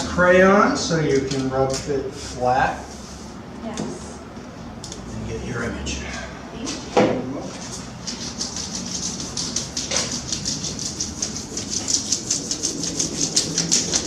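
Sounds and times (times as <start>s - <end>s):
crayon scratching on paper: 7.6s - 14.0s.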